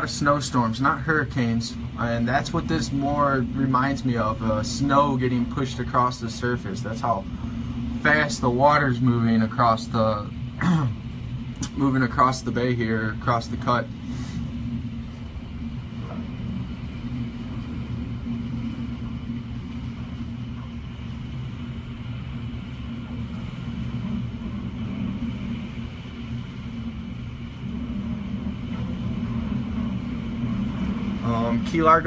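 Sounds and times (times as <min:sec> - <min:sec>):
wind rumbling through window: 0:00.0 - 0:32.0.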